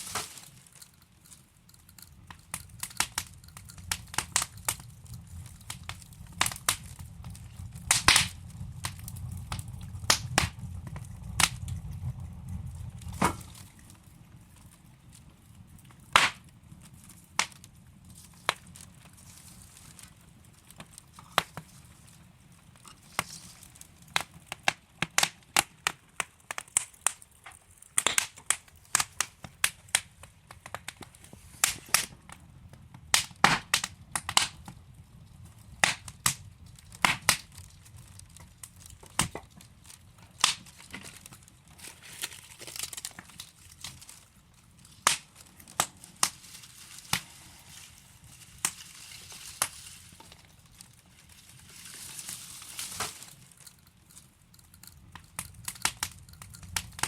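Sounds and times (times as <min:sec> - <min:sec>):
burning logs crackling and popping: 0:00.0 - 0:57.0
low rumble: 0:03.2 - 0:14.6.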